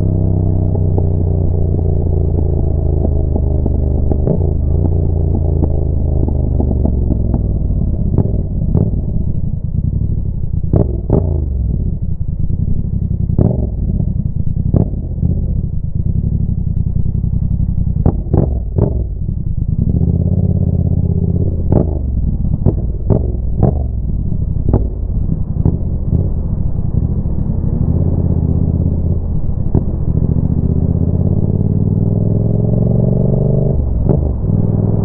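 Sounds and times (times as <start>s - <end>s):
motorcycle engine revving: 0.0s - 35.0s
exhaust pops and bangs: 0.8s - 11.9s, 13.2s - 35.0s.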